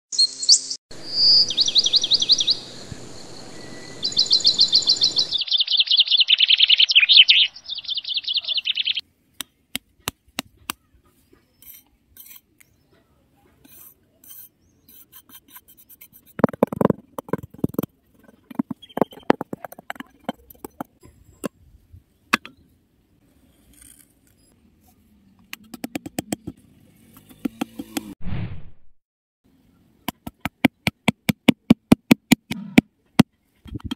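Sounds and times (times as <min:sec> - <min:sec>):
birdsong chirping trills: 0:00.1 - 0:09.0, 0:18.2 - 0:20.8
metal tool scraping sand: 0:11.5 - 0:12.6, 0:13.6 - 0:21.0.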